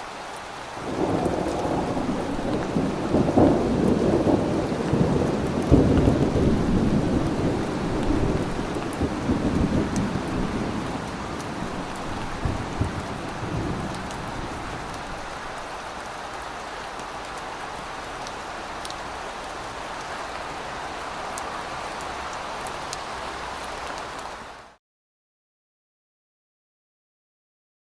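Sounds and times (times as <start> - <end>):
steady rain: 0.0 - 24.8
low thunder rumble: 0.8 - 15.2
rain drop ticks: 7.1 - 13.3, 13.9 - 14.2, 14.8 - 20.6.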